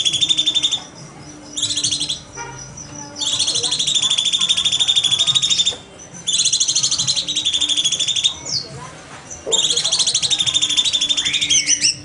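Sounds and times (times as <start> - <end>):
bird trilling rapid high notes: 0.0 - 8.6, 9.5 - 12.0.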